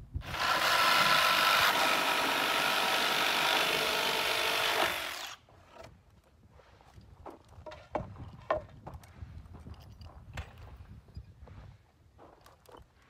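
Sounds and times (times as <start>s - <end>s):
cordless drill drilling wood: 0.2s - 5.4s.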